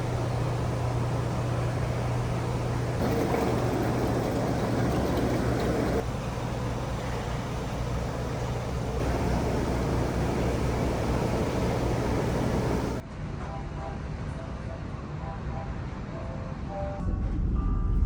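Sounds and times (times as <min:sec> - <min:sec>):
rushing water noise: 0:00.0 - 0:13.0
ship engine hum: 0:00.0 - 0:13.0.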